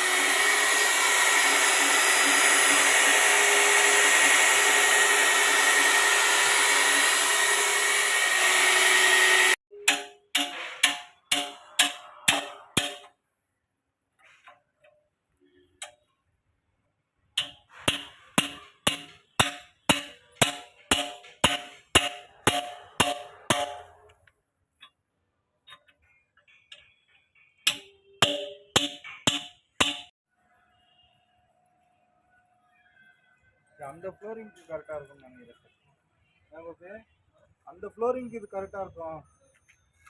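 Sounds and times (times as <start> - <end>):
hammer blows on steel: 7.9 - 13.1, 17.4 - 24.0, 27.6 - 30.1.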